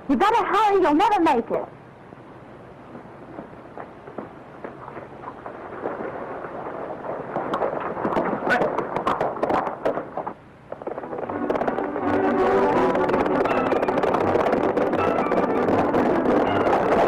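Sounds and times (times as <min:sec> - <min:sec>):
horses galloping hoofbeats: 0:02.9 - 0:17.0
film score music: 0:11.0 - 0:17.0.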